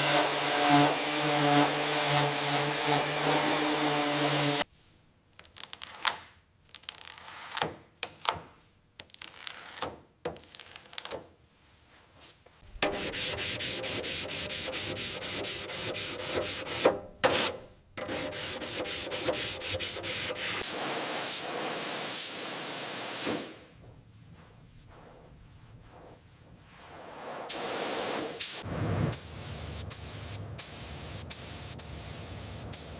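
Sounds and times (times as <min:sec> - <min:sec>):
hand sanding strokes: 0:00.0 - 0:04.7, 0:12.6 - 0:28.6.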